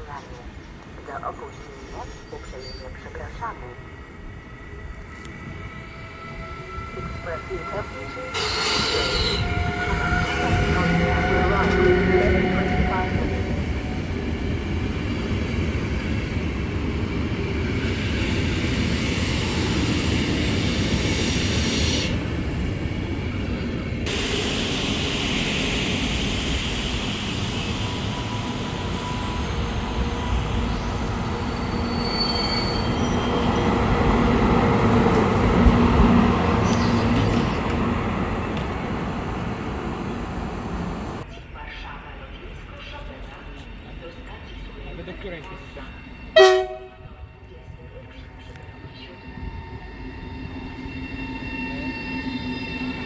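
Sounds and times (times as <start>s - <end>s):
train wheels rumbling on rail: 4.8s - 41.3s
high wheel squeals: 6.1s - 13.9s, 24.1s - 34.5s.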